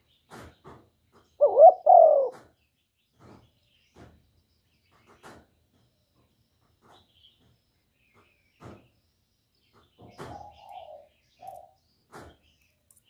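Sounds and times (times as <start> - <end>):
dove cooing: 1.4 - 2.4, 10.2 - 11.8.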